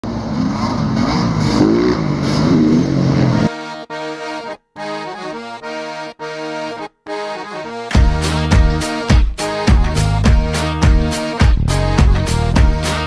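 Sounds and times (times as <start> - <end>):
dirt bike engines revving: 0.0 - 3.5
accordion-like chords: 2.5 - 13.0.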